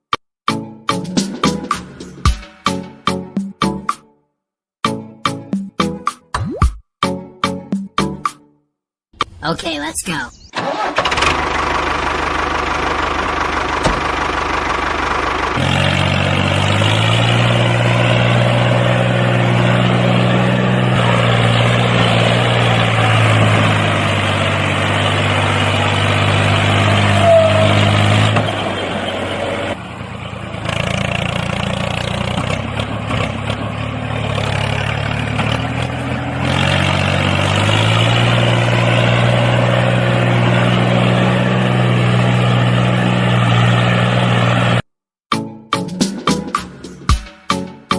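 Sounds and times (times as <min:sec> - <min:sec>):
tractor engine idling: 0:10.6 - 0:44.8.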